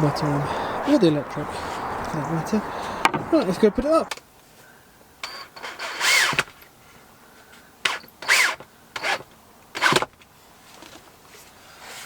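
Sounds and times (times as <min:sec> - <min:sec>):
power drill driving screws into wood: 0:05.2 - 0:06.6, 0:07.8 - 0:10.1.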